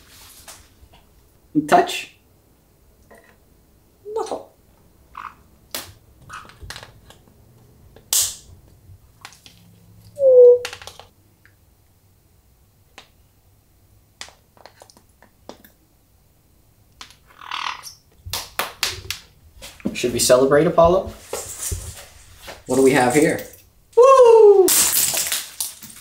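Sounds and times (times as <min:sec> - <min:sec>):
parrot call: 0:10.2 - 0:10.7, 0:17.3 - 0:18.0.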